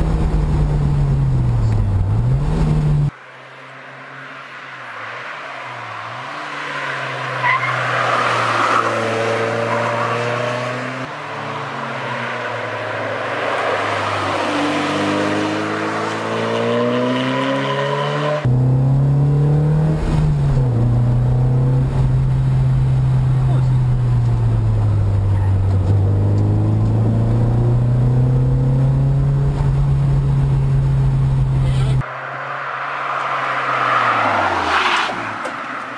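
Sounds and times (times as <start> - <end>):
engine drone inside car: 0.0 - 3.2
sports car engines accelerating: 0.0 - 35.9.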